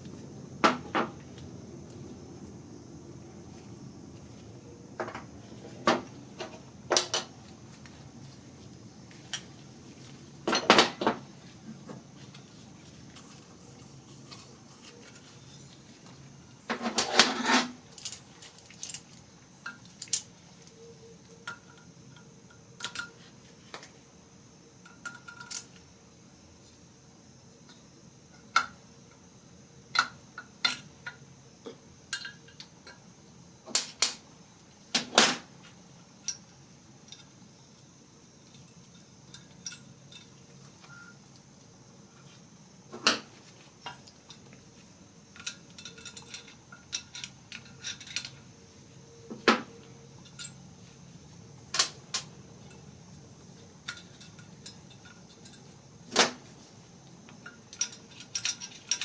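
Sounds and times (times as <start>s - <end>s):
metal engine parts clinking: 24.8s - 25.8s, 45.3s - 48.4s, 50.2s - 50.6s, 53.8s - 55.7s, 57.4s - 59.0s.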